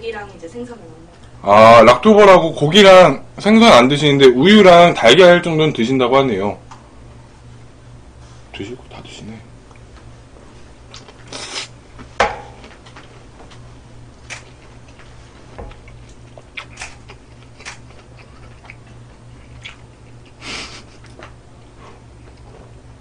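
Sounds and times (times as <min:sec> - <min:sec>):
steady low hum: 0:00.0 - 0:23.0
close chewing: 0:15.7 - 0:20.1.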